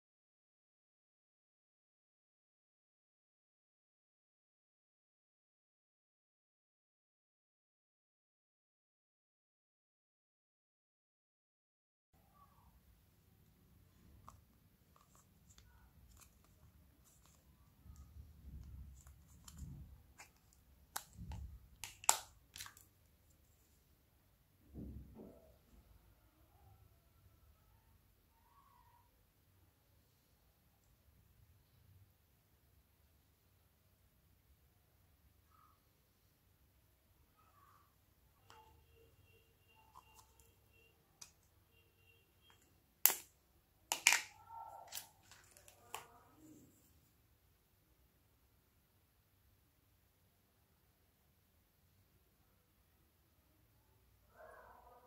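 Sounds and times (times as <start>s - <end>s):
lid popping off: 43.9s - 44.3s
plastic lid clicking: 43.9s - 44.3s
plastic clicks and rustling: 43.9s - 46.1s.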